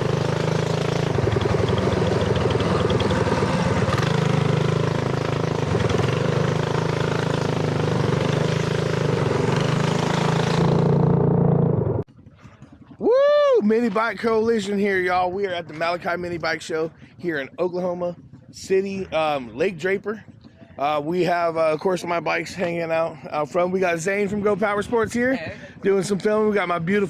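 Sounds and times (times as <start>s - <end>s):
mini bike engine running: 0.0s - 13.5s.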